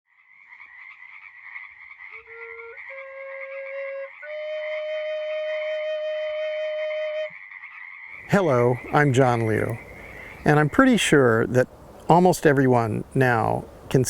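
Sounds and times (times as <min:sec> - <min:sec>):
wind instrument long notes: 0:02.3 - 0:07.3
chorus of calling animals: 0:07.3 - 0:11.2.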